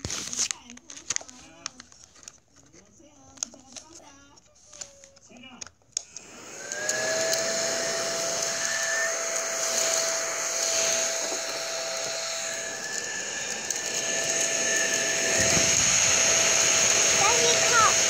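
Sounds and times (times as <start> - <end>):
mini vacuum cleaner whine: 6.0 - 18.0.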